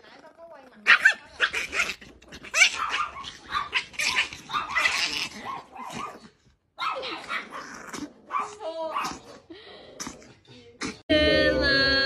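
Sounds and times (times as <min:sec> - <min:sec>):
dog barking and yipping: 0:00.9 - 0:09.4.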